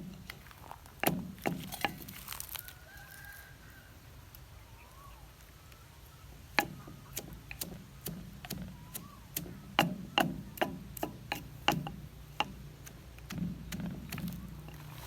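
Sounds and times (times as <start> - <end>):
sharp wooden knocks: 1.0 - 2.1, 9.8 - 15.0.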